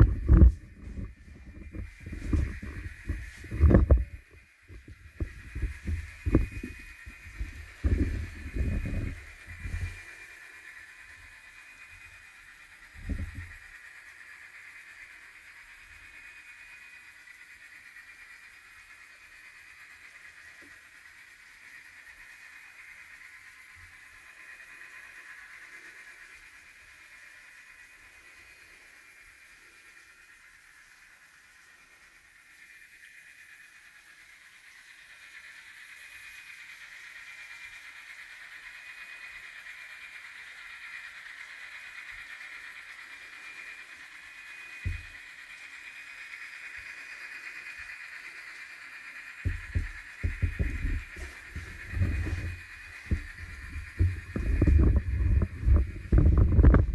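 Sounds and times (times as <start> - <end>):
model trains whirring: 0.0 - 56.9
wheels on rails: 0.0 - 56.9.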